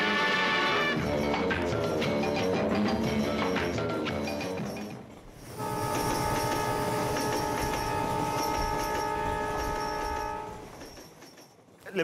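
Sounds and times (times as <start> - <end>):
train wheels rumbling on rails: 1.0 - 12.0
train horn long blast: 5.5 - 10.7.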